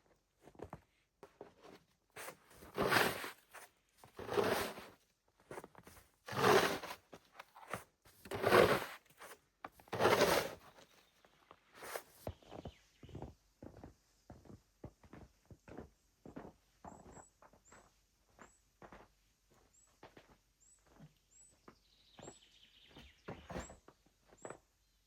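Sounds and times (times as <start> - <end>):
footsteps crunching through snow: 1.4 - 7.0, 7.6 - 10.8, 11.8 - 13.3.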